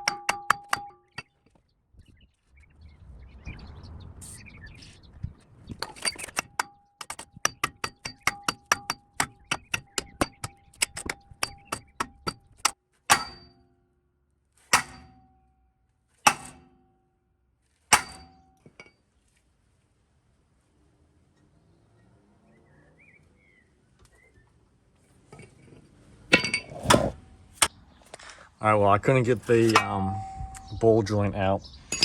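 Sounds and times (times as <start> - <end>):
hammer striking steel: 0.0 - 1.4, 5.8 - 13.6, 14.7 - 15.3, 16.3 - 16.8, 17.9 - 18.4, 29.4 - 31.1
scraping rustle: 29.2 - 30.7.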